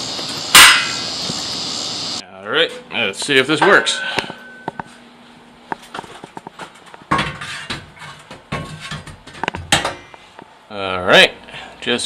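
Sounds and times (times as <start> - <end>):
steel piece scraping and clunking: 7.1 - 9.6.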